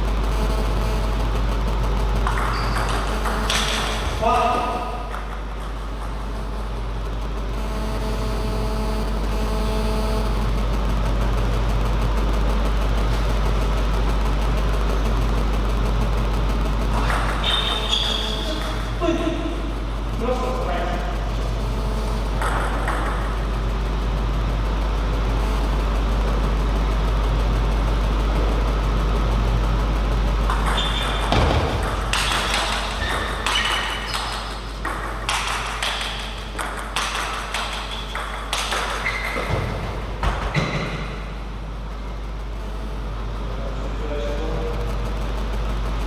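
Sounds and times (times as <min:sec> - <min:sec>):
low background hum: 0:00.0 - 0:46.0
table tennis ball pinging: 0:02.2 - 0:04.0, 0:04.7 - 0:06.3, 0:22.3 - 0:23.4, 0:30.5 - 0:40.9.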